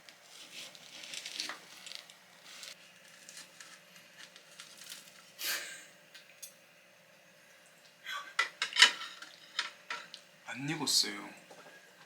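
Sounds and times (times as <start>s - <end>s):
potato skin crinkling and tearing: 0.0s - 5.4s.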